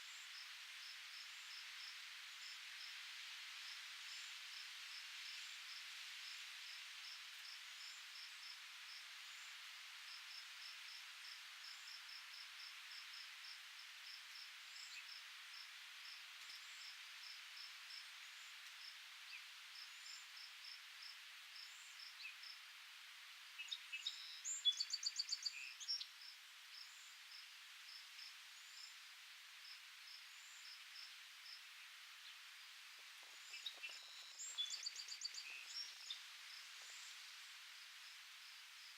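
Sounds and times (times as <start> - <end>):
steady high hiss: 0.0 - 38.9.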